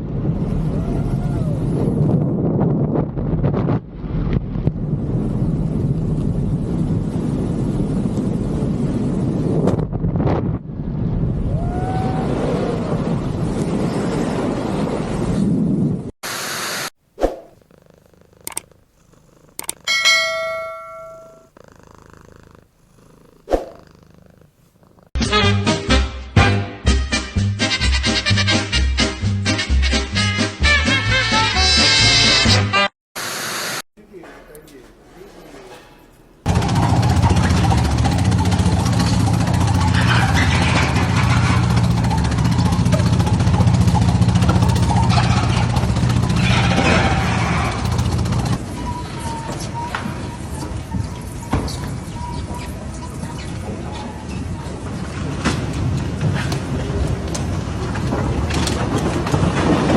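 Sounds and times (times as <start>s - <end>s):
sharp clicks: 18.4s - 18.7s, 19.6s - 19.8s
bell-like metallic strike: 19.9s - 21.5s
engine running loudly: 36.5s - 48.6s.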